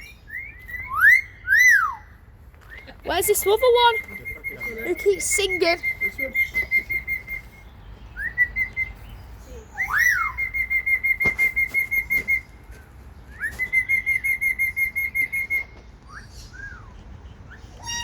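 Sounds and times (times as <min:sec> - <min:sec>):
songbird whistling quick notes: 0:09.8 - 0:12.5, 0:13.3 - 0:18.0.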